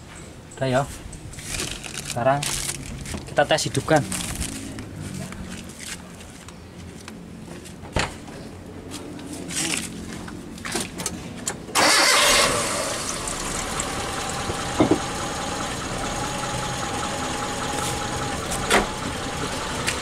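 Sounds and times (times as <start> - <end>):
car engine starting and idling: 11.0 - 20.0
engine knocks: 13.0 - 20.0.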